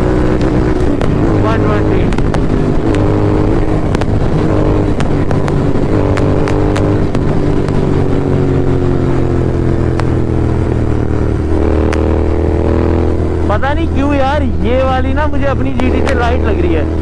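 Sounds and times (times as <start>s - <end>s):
motorcycle engine at speed: 0.0s - 17.0s
sharp clicks: 3.8s - 7.8s, 9.9s - 10.2s.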